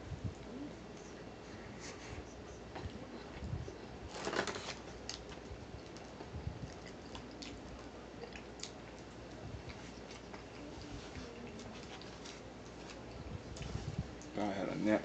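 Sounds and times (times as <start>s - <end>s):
paper wrapper rustling: 4.1s - 4.9s
person chewing: 4.8s - 13.7s.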